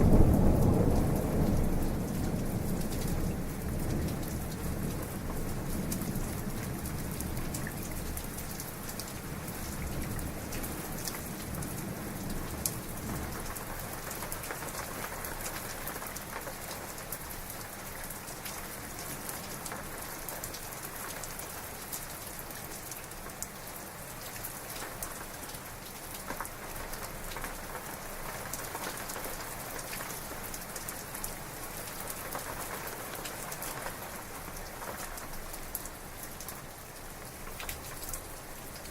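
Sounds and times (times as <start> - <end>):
low thunder rumble: 0.0 - 6.3
heavy rain falling: 0.0 - 38.9.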